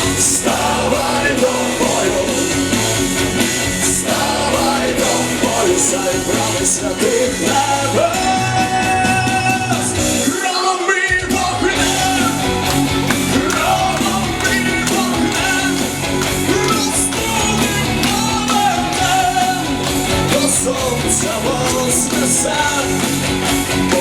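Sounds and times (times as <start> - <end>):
electric guitar: 0.0 - 10.4, 11.2 - 24.0
live rock band playing: 0.0 - 24.0
person singing: 10.3 - 24.0.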